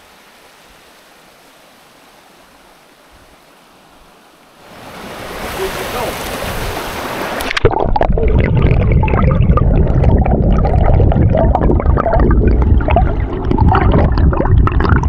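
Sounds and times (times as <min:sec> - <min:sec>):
rushing gurgling stream water: 0:00.0 - 0:15.0.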